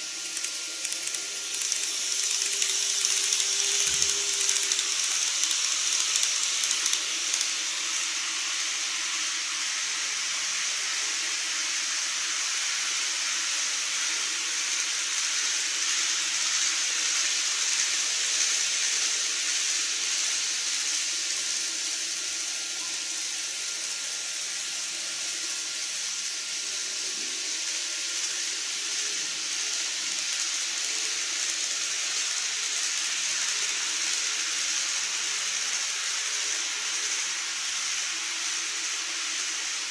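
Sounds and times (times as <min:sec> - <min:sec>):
steady hiss: 0:00.0 - 0:39.9
model train clattering over rail joints: 0:00.2 - 0:07.5.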